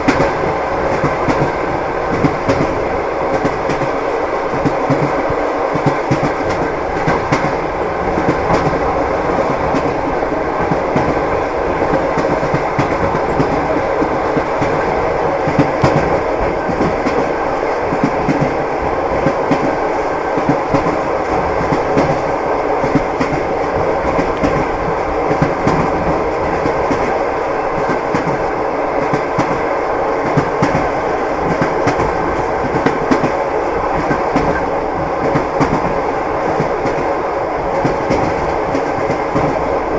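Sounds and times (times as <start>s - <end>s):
train running rumble: 0.0s - 39.9s
train wheels clacking: 0.0s - 39.9s.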